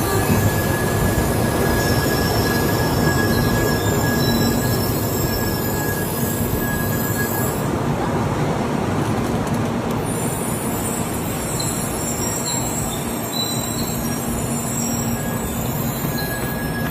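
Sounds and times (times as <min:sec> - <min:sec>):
high-speed train running: 0:00.0 - 0:16.9
faint high squeaks: 0:11.0 - 0:16.9.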